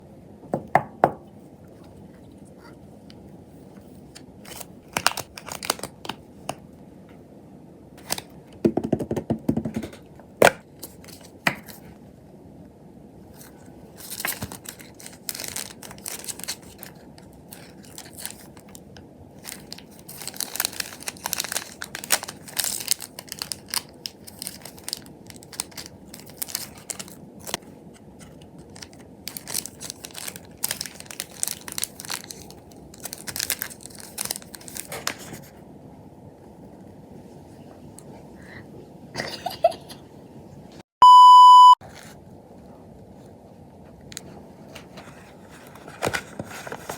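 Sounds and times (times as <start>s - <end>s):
packaging crinkling and tearing: 4.1s - 6.6s, 8.0s - 8.3s, 13.4s - 27.6s, 28.2s - 35.5s.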